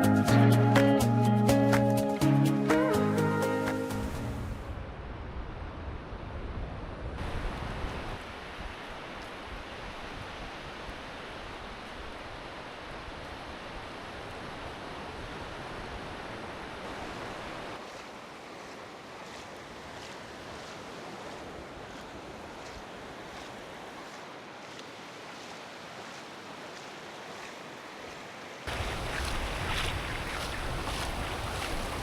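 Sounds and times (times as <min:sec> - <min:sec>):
sea surf on beach: 0:00.0 - 0:32.0
wind buffeting microphone: 0:28.7 - 0:32.0.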